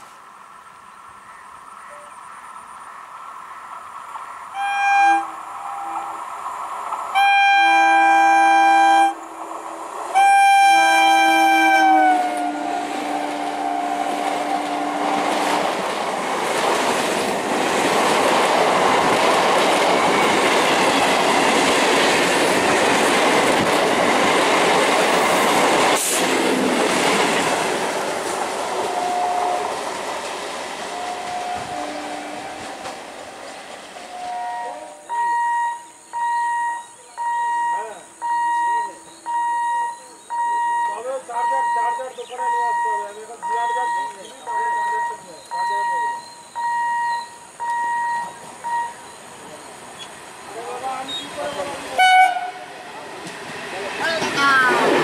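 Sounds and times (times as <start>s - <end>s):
train coaches and wheels rushing by: 0.0s - 55.0s
train horn blasts: 4.5s - 6.2s, 7.1s - 9.4s, 10.1s - 15.6s, 28.8s - 29.8s, 30.9s - 32.7s, 34.1s - 35.8s, 52.0s - 52.7s.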